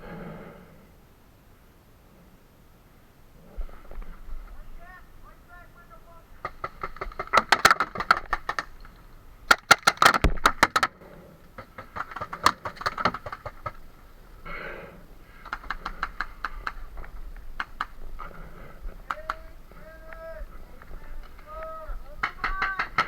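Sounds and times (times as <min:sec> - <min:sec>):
paintball markers firing: 0:06.4 - 0:08.9, 0:09.5 - 0:11.0, 0:11.6 - 0:13.9, 0:15.3 - 0:23.0.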